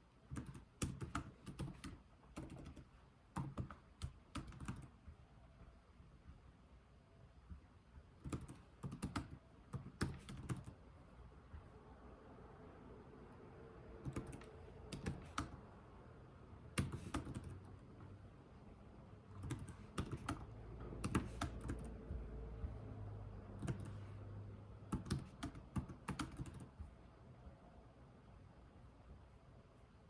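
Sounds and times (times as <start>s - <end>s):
computer keyboard typing: 0.3s - 5.0s, 8.2s - 10.8s, 14.0s - 15.7s, 16.7s - 18.2s, 19.3s - 22.8s, 23.5s - 24.1s, 24.9s - 26.9s.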